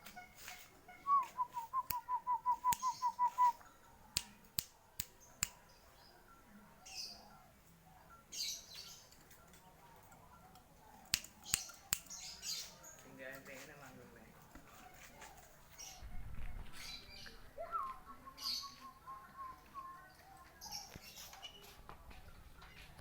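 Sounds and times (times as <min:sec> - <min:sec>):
sharp clicks: 0:11.0 - 0:12.2
soft rustles: 0:12.5 - 0:17.4.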